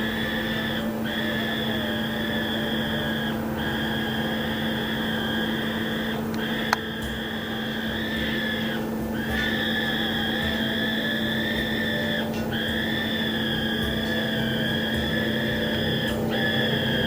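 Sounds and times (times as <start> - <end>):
constant low hum: 0.0 - 17.0.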